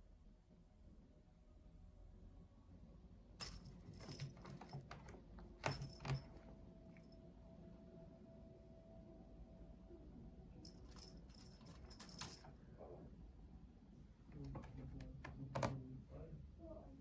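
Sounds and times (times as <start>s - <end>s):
light jangling clatter: 3.4s - 6.5s, 10.6s - 12.6s.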